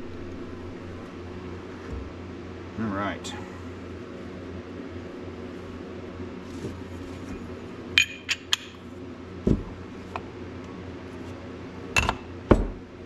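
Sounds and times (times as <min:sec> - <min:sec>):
steady low hum: 0:00.0 - 0:13.0
dull knock: 0:09.5 - 0:09.7.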